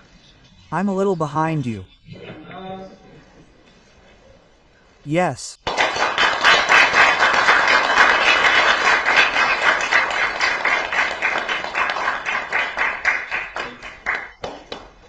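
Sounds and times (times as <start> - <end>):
people applauding: 5.6 - 15.0.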